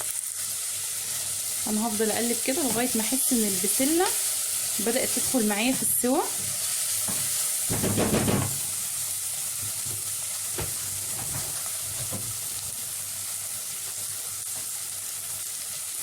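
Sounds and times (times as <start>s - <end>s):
vegetables sizzling in a pot: 0.0s - 16.0s
spoon knocking against pot: 7.1s - 8.7s.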